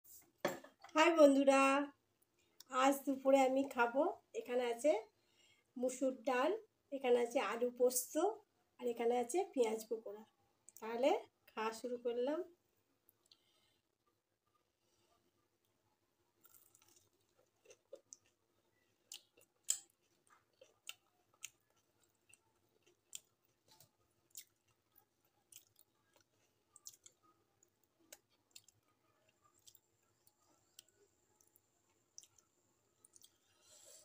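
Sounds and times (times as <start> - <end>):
faint steady hum: 0.8 - 34.0
person chewing food: 13.0 - 13.8, 14.8 - 34.0.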